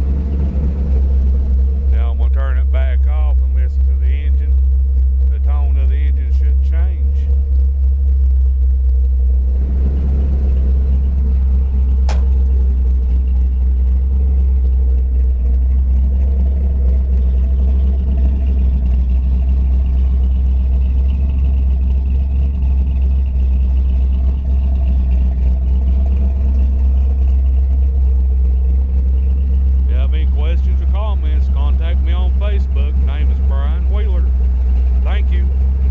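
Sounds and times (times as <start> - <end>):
truck engine running: 0.0 - 35.9
sharp click: 12.1 - 12.4.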